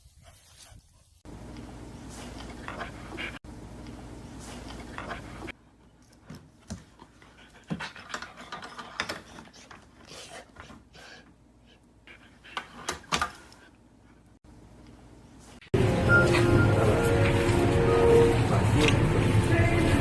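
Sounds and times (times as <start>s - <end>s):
dog panting: 2.1s - 3.4s, 4.4s - 14.3s.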